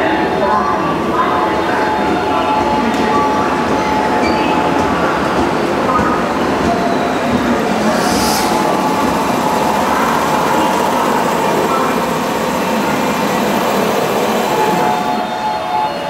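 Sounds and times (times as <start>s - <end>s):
train wheels running slowly: 2.1s - 15.6s
short air hiss: 7.8s - 8.7s.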